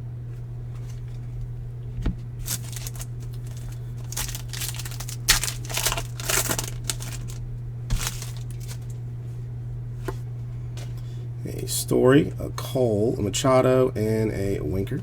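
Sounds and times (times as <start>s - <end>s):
steady low hum: 0.0s - 15.0s
cards being handled: 2.4s - 9.0s
foil wrappers tearing and crinkling: 2.4s - 9.0s.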